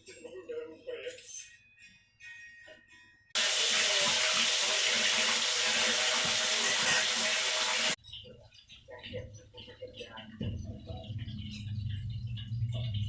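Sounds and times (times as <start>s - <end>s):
water running from a tap: 3.4s - 8.0s.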